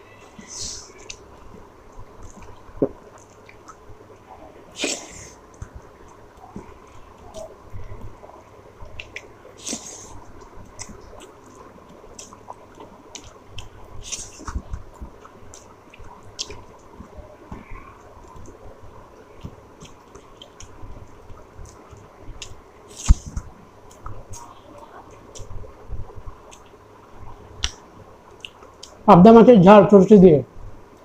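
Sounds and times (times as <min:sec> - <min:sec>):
person chewing food: 0:02.2 - 0:08.2, 0:08.8 - 0:24.4, 0:26.4 - 0:26.8, 0:27.6 - 0:29.0
mouth smacks: 0:08.9 - 0:10.1, 0:27.6 - 0:27.8, 0:28.4 - 0:29.0.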